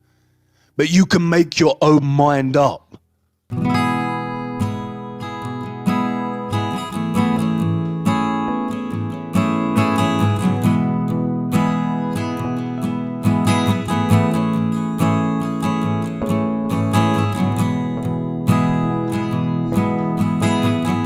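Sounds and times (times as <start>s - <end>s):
acoustic guitar playing chords: 3.5s - 21.0s.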